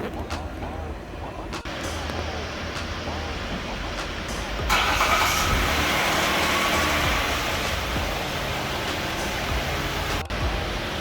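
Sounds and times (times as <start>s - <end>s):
car running: 1.6s - 11.0s.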